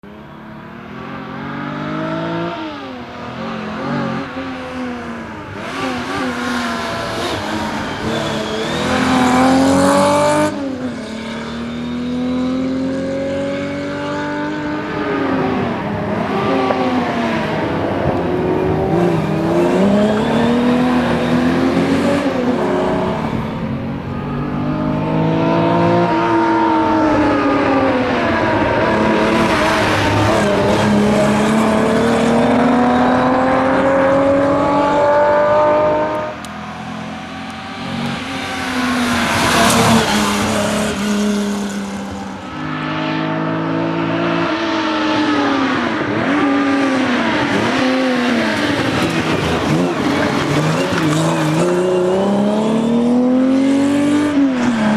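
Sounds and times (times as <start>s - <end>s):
car engine accelerating hard: 0.0s - 54.9s.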